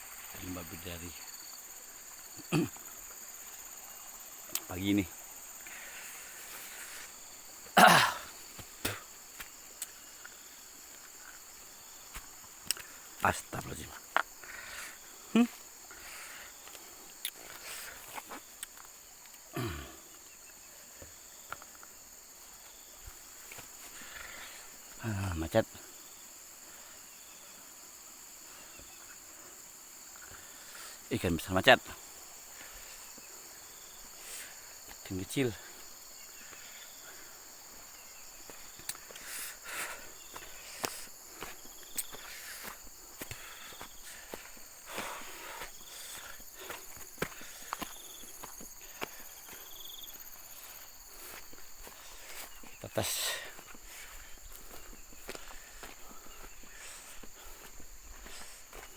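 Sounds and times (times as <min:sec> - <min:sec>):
high insect chirring: 0:00.0 - 0:58.9
footsteps walking: 0:08.5 - 0:13.0, 0:37.7 - 0:58.9.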